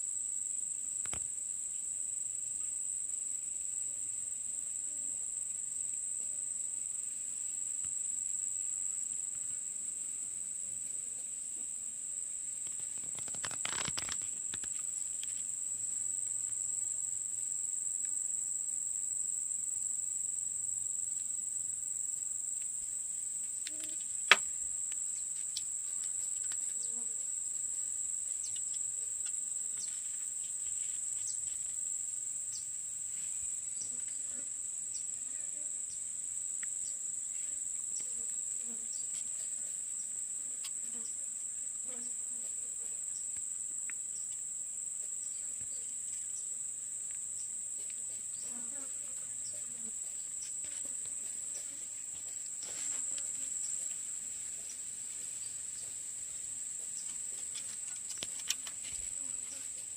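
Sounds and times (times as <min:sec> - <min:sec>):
high-pitched insect chorus: 0:00.0 - 0:59.9
faint ticks: 0:23.4 - 0:27.1, 0:43.2 - 0:44.5, 0:56.9 - 0:59.7.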